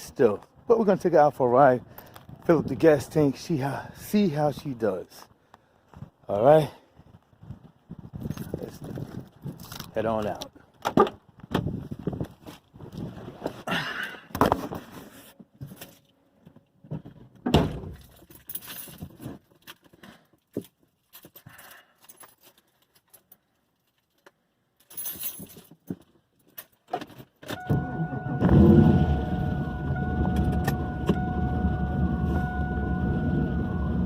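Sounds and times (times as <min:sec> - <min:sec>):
keys jangling: 0:18.0 - 0:19.9, 0:20.6 - 0:26.9
car engine starting and running: 0:27.5 - 0:34.0
whine-like tone: 0:27.5 - 0:34.0.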